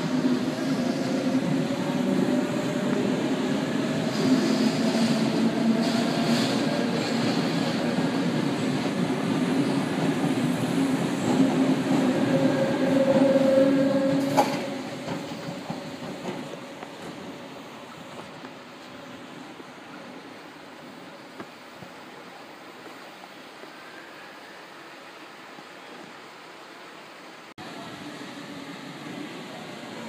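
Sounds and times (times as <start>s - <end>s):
train rail rumble: 0.0s - 19.6s.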